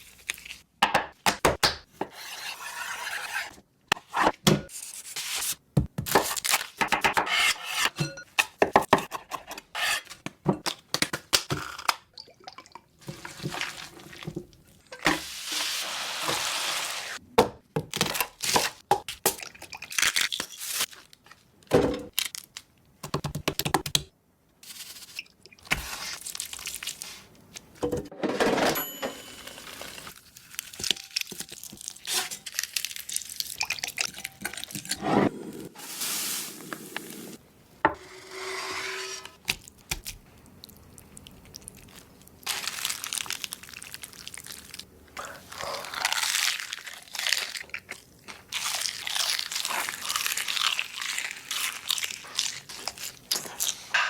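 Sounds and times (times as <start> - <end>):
chewing crunchy food: 40.3 - 53.9.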